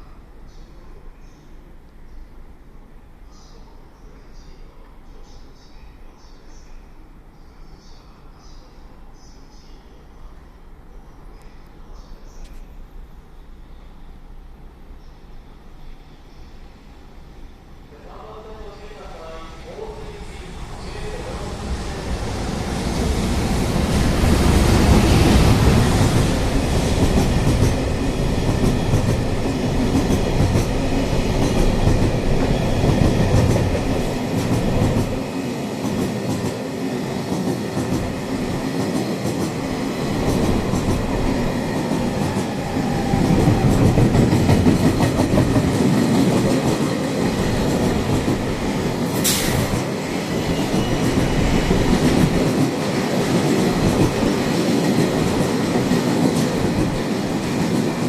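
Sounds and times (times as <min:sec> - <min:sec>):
freight train rolling past: 0:13.4 - 0:58.0.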